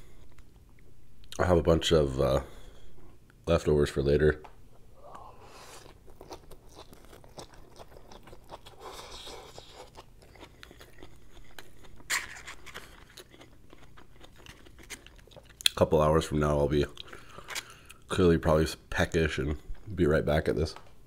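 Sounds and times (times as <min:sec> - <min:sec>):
wet chewing: 0:05.1 - 0:15.8.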